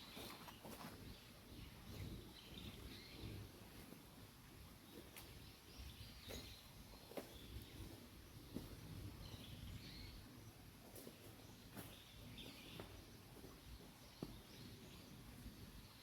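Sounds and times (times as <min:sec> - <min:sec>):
distant bird chirps: 0:04.9 - 0:15.3.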